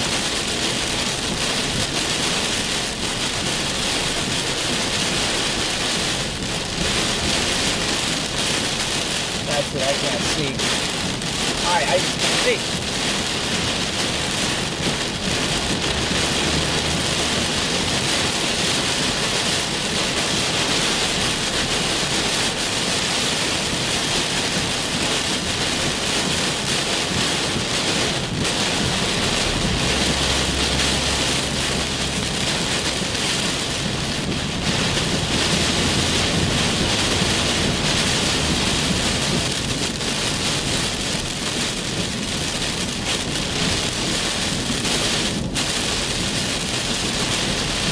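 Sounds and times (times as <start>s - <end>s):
heavy rain pouring: 0.0s - 47.9s
low thunder rumbling: 23.5s - 47.9s.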